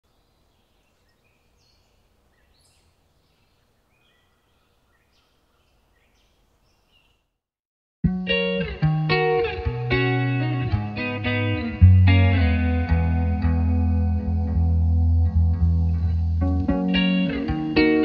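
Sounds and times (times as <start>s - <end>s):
loud guitar music: 8.0s - 18.0s.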